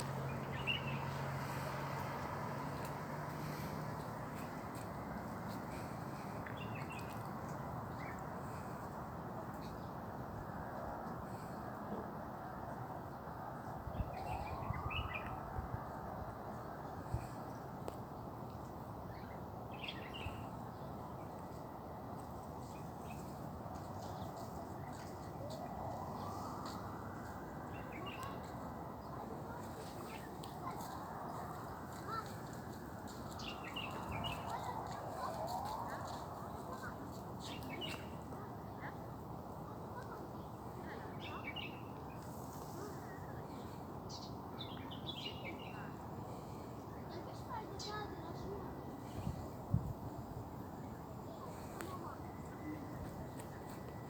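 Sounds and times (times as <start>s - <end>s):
small birds chirping: 0.0s - 8.3s.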